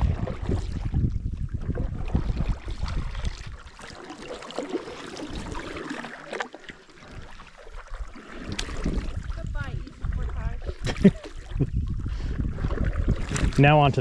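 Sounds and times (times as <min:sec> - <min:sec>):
paddle strokes in water: 0:00.0 - 0:14.0
water swishing and dripping: 0:00.0 - 0:14.0.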